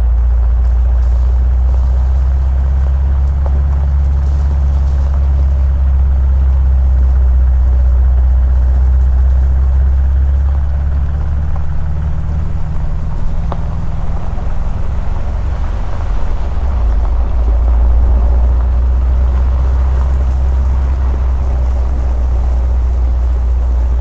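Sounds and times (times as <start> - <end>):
vehicle rumbling: 0.0 - 24.0.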